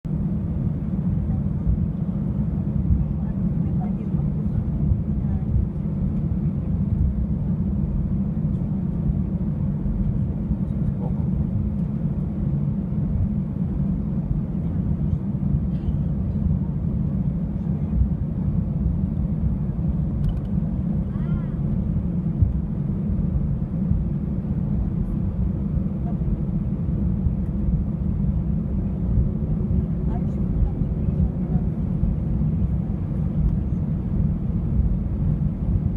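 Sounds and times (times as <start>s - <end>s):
airliner rumble: 0.0s - 35.9s.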